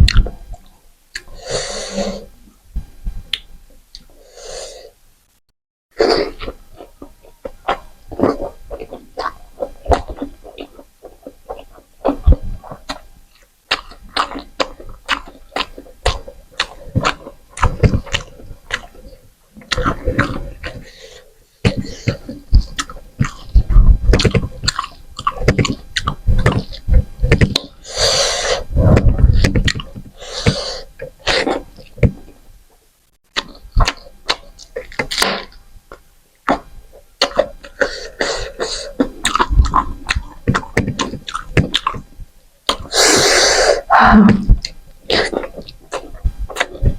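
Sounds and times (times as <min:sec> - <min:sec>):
lip smacks and mouth clicks: 0:00.0 - 0:01.3
wet chewing: 0:06.0 - 0:32.4, 0:33.3 - 0:42.1, 0:44.6 - 0:46.9.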